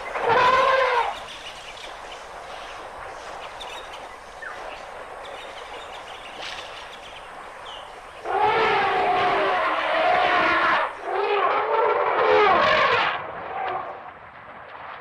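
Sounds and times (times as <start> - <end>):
steady outdoor hiss: 0.0 - 15.0
elephant trumpeting: 0.2 - 1.2, 8.2 - 13.2.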